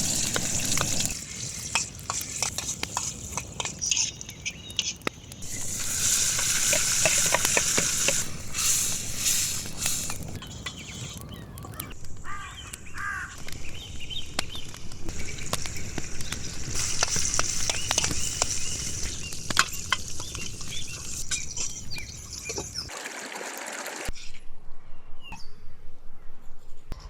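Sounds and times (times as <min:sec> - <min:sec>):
steady high hiss: 0:00.0 - 0:11.2, 0:12.2 - 0:22.9
campfire crackling and popping: 0:00.0 - 0:23.0
bird chirping: 0:03.6 - 0:22.9.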